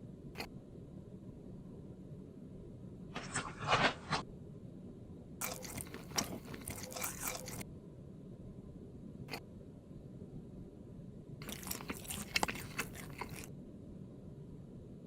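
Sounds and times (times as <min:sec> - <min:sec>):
crunchy biting and chewing: 0:05.4 - 0:07.6, 0:11.4 - 0:13.5.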